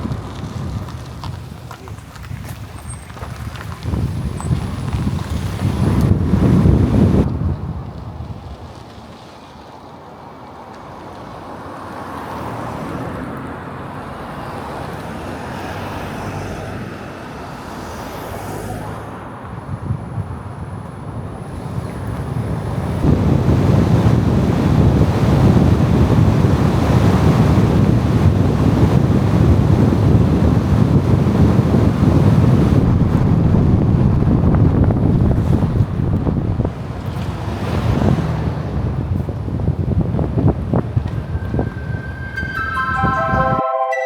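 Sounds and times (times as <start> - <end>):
wind buffeting microphone: 0.0 - 9.1, 19.4 - 42.5.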